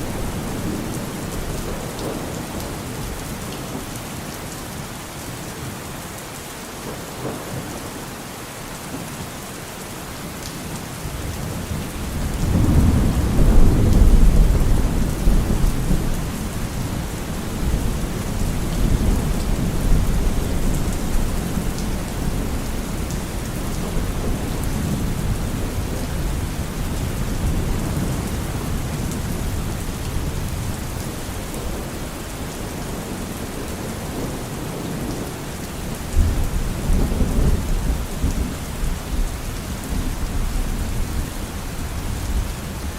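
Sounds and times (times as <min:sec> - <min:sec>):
thunder rumbling: 0:00.0 - 0:03.1, 0:11.4 - 0:35.1
steady rain: 0:00.0 - 0:42.9.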